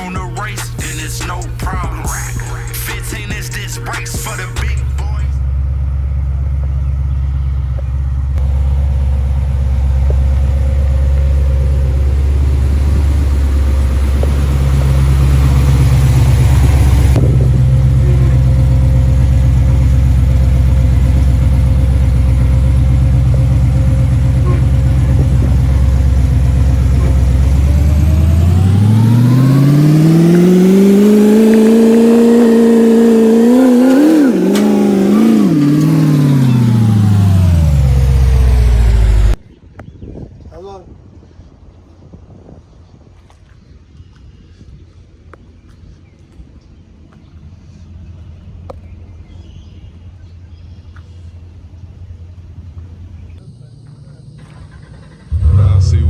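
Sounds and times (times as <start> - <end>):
car engine idling and revving: 0.0 - 40.0, 42.6 - 56.0.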